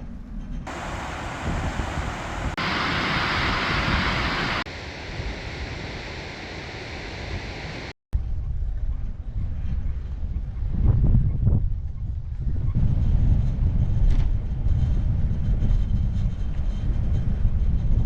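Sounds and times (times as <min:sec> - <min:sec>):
bicycle rolling noise: 0:00.7 - 0:07.7
wind rushing over microphone: 0:00.7 - 0:08.4, 0:09.5 - 0:18.0.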